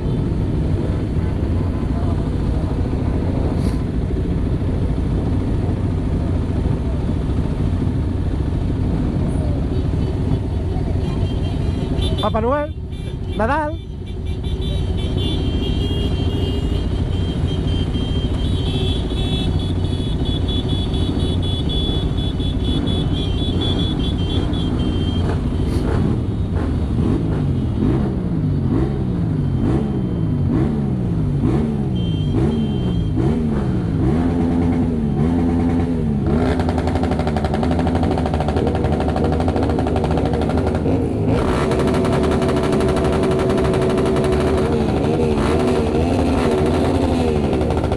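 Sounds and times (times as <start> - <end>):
motorcycle engines rumbling: 0.0 - 47.9
motorcycle engine revving: 14.8 - 47.9.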